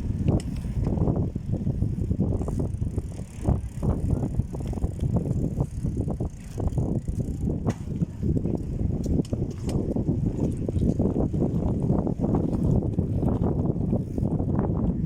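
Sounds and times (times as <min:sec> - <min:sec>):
bicycle rumble and rattle: 0:00.0 - 0:15.0.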